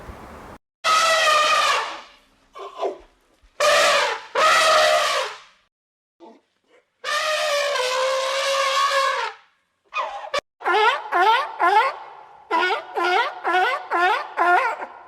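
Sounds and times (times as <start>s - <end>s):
animal calling: 10.0s - 15.0s.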